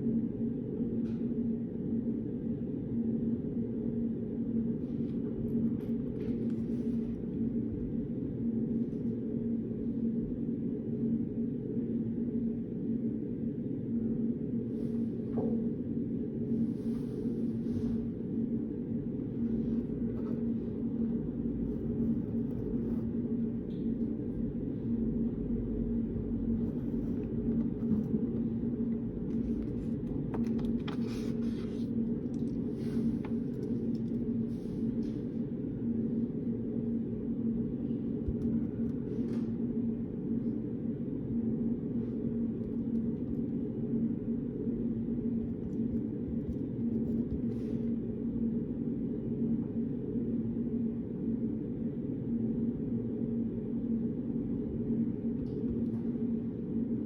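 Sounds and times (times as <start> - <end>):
low room hum: 0.0 - 57.0.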